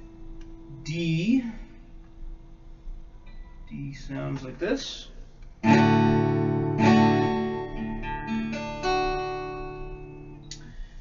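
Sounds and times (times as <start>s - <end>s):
acoustic guitar strumming: 5.6s - 10.8s.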